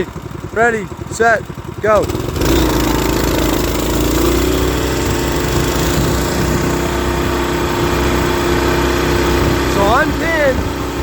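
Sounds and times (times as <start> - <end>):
small engine at full throttle: 0.0 - 11.0
wind noise: 4.6 - 11.0.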